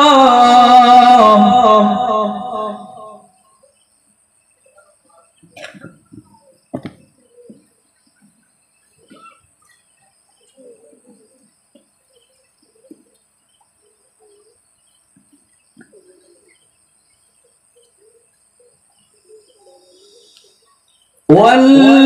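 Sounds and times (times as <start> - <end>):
faint bird chirps and coos: 3.2 - 21.3.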